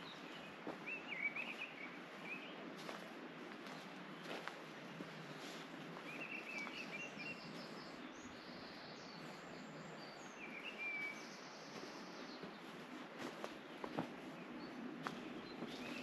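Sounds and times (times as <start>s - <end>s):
small birds chirping: 0.0s - 16.0s
steady outdoor hiss: 0.0s - 16.0s.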